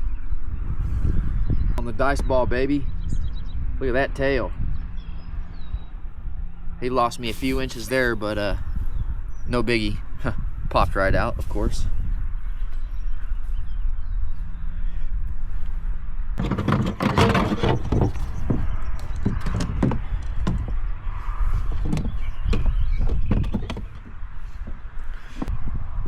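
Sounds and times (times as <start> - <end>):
clattering knocks: 16.4 - 25.5.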